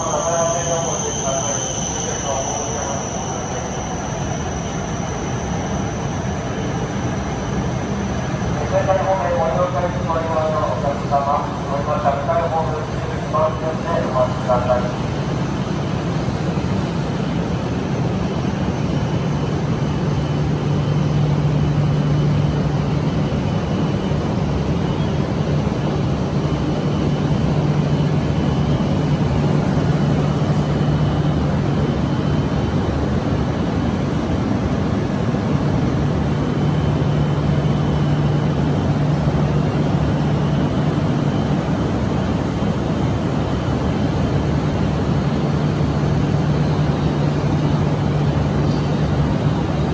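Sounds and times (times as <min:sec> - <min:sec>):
train equipment low hum: 0:00.0 - 0:49.9.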